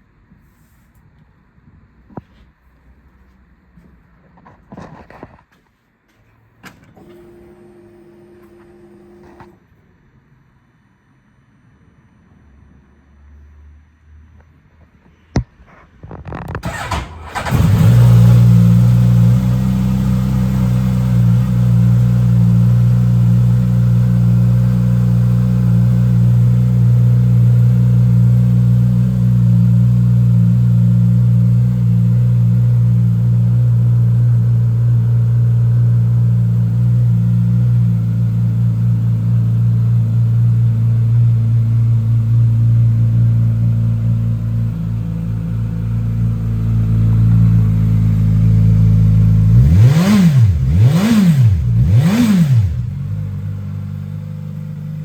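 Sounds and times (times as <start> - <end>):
motorcycle engine idling: 18.5 - 49.7, 52.7 - 55.0.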